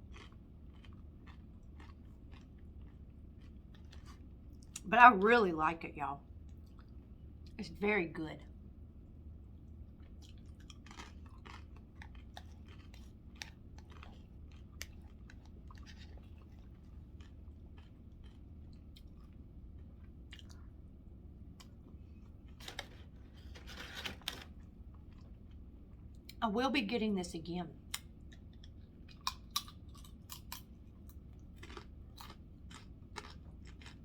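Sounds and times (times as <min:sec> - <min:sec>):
crunching: 0:00.0 - 0:04.8, 0:10.1 - 0:19.3, 0:29.1 - 0:34.0
person chewing food: 0:00.0 - 0:04.8, 0:06.4 - 0:07.2, 0:09.6 - 0:26.4, 0:27.9 - 0:34.0.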